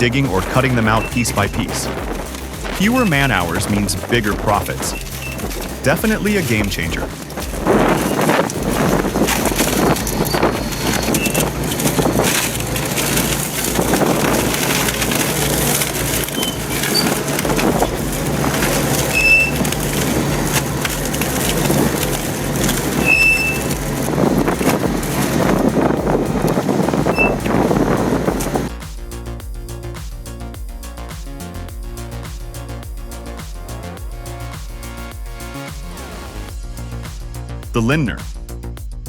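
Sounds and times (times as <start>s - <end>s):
wood crunching and splintering: 0.0s - 28.7s
shredder machine drone: 0.0s - 28.8s.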